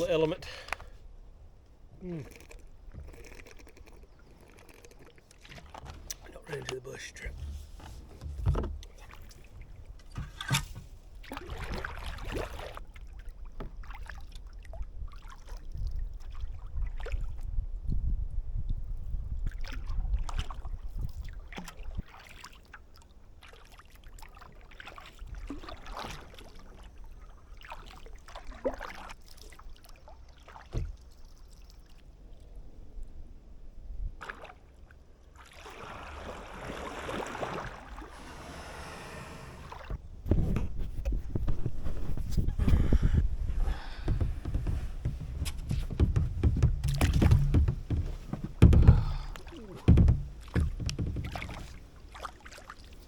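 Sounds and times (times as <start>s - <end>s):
kayak paddle splashing in water: 7.5s - 17.3s, 19.5s - 31.6s, 35.3s - 40.0s, 42.8s - 53.0s.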